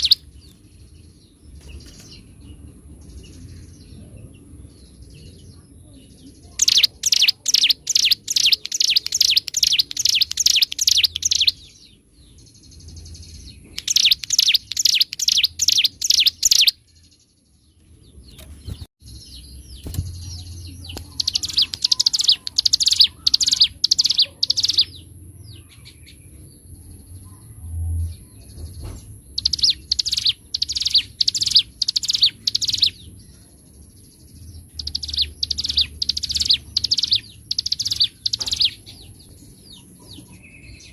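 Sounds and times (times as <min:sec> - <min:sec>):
bird singing sharp repeated notes: 0:00.0 - 0:02.3, 0:06.4 - 0:17.2, 0:18.3 - 0:25.1, 0:29.3 - 0:33.2, 0:34.5 - 0:40.9.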